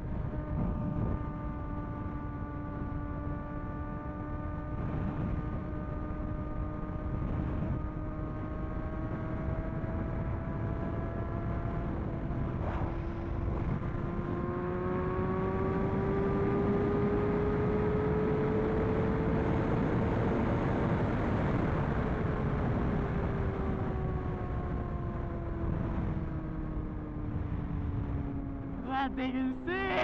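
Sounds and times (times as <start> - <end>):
motorcycle engine at high revs: 0.4 - 21.4.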